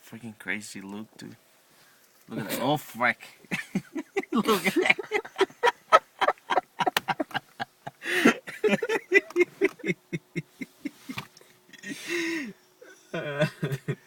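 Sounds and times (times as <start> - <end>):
man laughing hard: 3.5 - 11.2, 11.8 - 14.0
breathy gasps for air: 8.0 - 8.4, 11.8 - 13.0.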